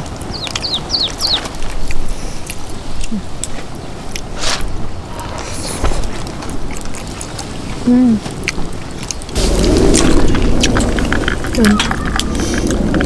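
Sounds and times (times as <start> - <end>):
outdoor background noise: 0.0 - 13.0
bird chirping: 0.2 - 1.9, 9.3 - 13.0.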